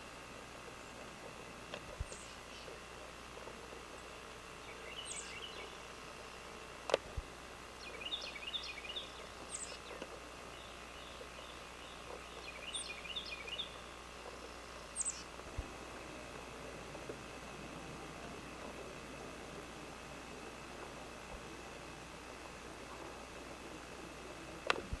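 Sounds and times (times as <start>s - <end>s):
background hiss: 0.0s - 25.0s
bird chirping: 2.0s - 2.9s, 4.0s - 6.0s, 7.8s - 16.6s.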